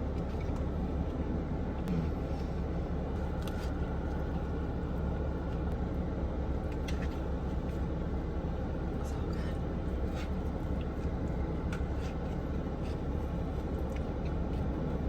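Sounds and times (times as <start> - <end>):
low background rumble: 0.0 - 15.0
crisp clicks of chewing taco: 10.2 - 15.0.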